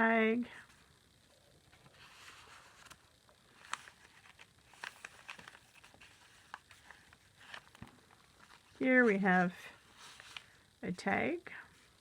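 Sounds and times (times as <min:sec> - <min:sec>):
paper rustling: 0:01.7 - 0:10.6.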